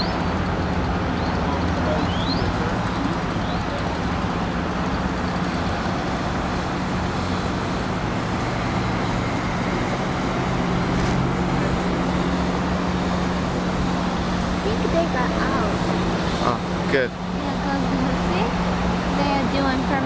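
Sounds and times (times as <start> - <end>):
engine idling: 0.0 - 20.0
traffic noise: 0.0 - 20.0.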